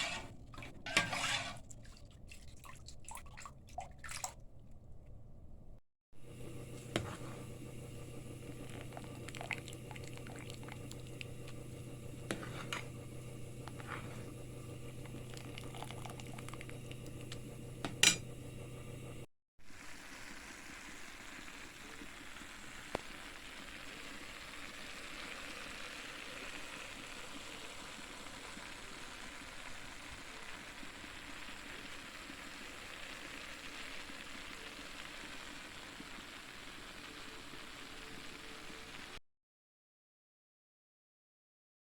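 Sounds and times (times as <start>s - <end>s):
food cooking in a pot: 0.0s - 1.9s, 6.2s - 39.2s
low hum: 6.2s - 19.3s.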